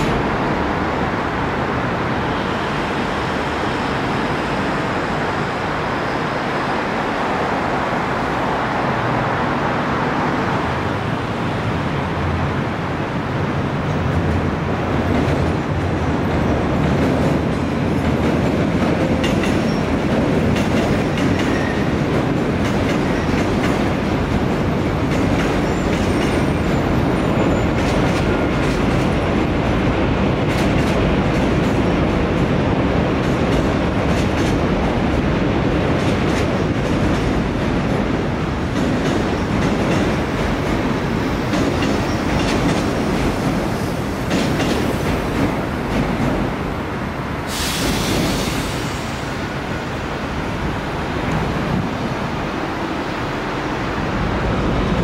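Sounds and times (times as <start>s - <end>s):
electric train rumbling past: 0.0s - 55.0s
wheels clacking over rail joints: 13.8s - 46.8s.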